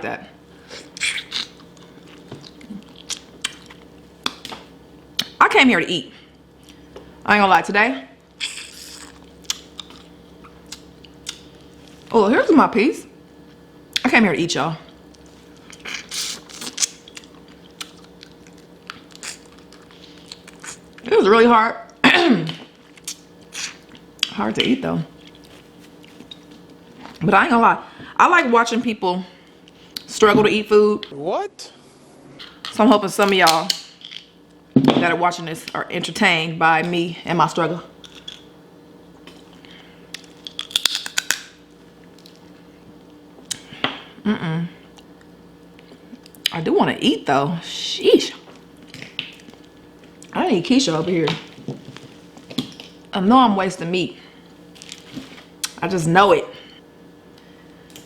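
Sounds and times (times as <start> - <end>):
chewing: 14.9 - 21.0, 25.2 - 27.2
crab shell crackling: 39.6 - 42.4
person humming: 44.2 - 44.8.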